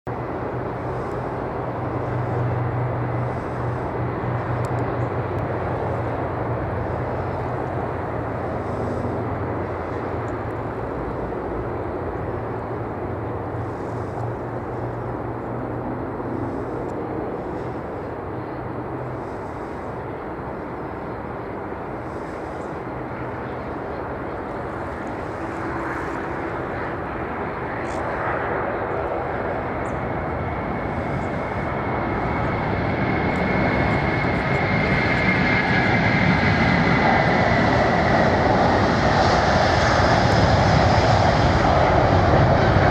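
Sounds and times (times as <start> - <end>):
jet engines roaring: 0.1 - 42.9
low engine drone: 0.1 - 42.9.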